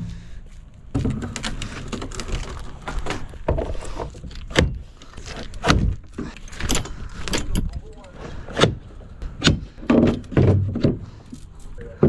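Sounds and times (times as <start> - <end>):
heavy thuds: 0.0 - 1.9
knocks and clunks: 0.0 - 11.2.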